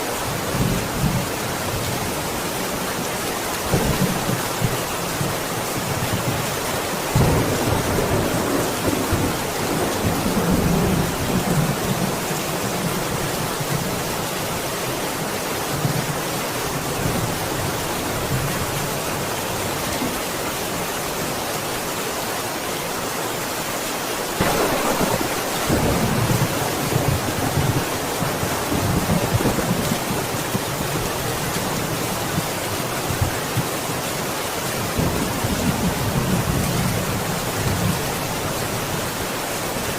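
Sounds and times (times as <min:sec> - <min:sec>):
steady rain falling: 0:00.0 - 0:39.9
rolling thunder: 0:07.1 - 0:12.1, 0:24.4 - 0:30.3.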